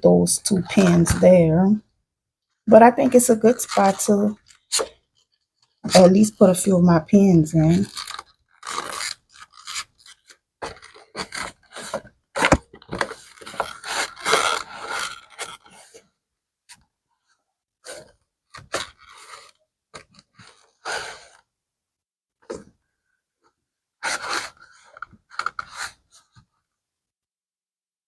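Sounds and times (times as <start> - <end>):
rubbing and scraping leather: 7.6 - 16.0, 17.8 - 21.5, 24.0 - 26.4.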